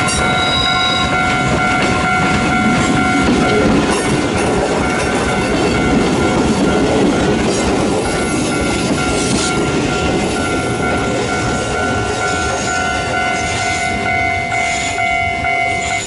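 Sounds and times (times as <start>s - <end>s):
wheel squeal: 0.0s - 1.2s
steady high tone: 0.0s - 16.0s.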